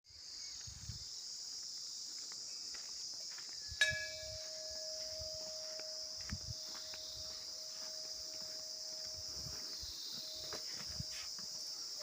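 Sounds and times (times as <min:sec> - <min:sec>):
insects chorus: 0:00.1 - 0:12.0
temple bell ringing: 0:03.8 - 0:09.5.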